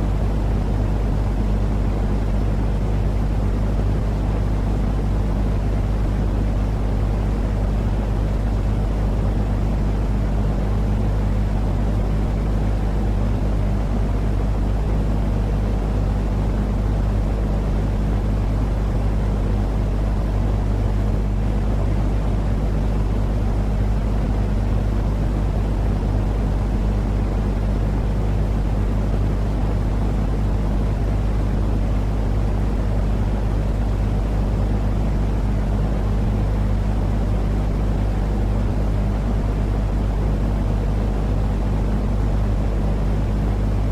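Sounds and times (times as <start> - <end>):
steady hum: 0.0 - 43.9.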